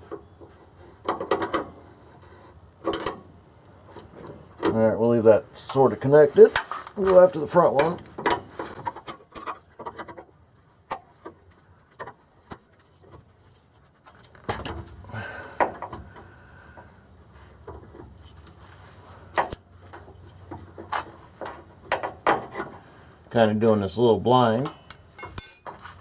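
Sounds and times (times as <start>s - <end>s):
wrenches clinking on metal nuts: 24.6s - 26.0s.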